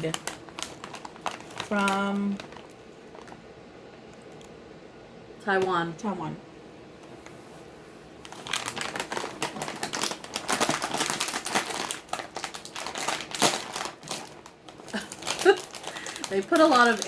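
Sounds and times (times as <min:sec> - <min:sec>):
chip bag crinkling: 0:00.0 - 0:03.5, 0:08.2 - 0:17.0.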